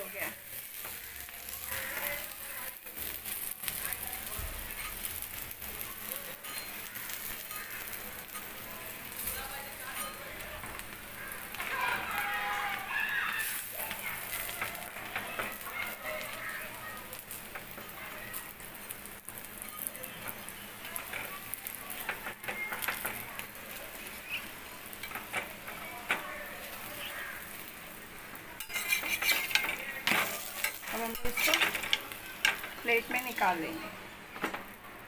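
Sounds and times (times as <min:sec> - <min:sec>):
butter sizzling on a pan: 0:00.0 - 0:35.0
metal spatula scraping and tapping: 0:06.4 - 0:07.6, 0:09.9 - 0:10.9, 0:22.0 - 0:23.2, 0:28.6 - 0:32.8.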